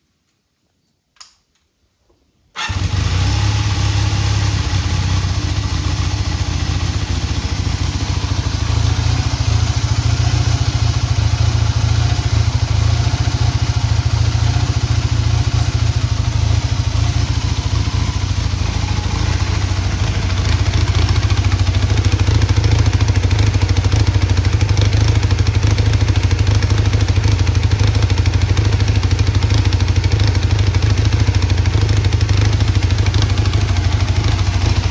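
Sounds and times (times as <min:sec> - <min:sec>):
motorcycle engine starting and idling: 0:02.5 - 0:34.9.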